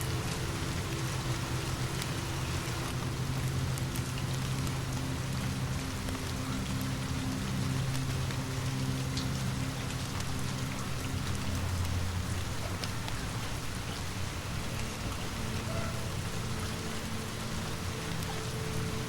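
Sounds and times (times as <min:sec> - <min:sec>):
low steady hum: 0:00.0 - 0:19.0
steady rain: 0:00.0 - 0:19.0.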